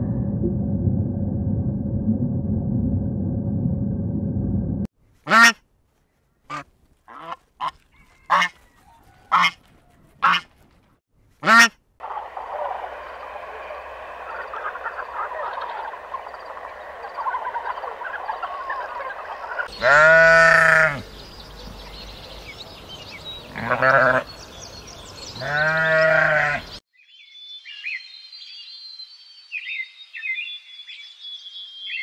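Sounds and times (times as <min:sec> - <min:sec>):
geese honking: 0:06.5 - 0:10.5, 0:11.4 - 0:21.0
wildebeest herd calling: 0:11.5 - 0:21.0
sheep bleating: 0:19.7 - 0:21.0, 0:23.5 - 0:24.3, 0:25.4 - 0:26.7.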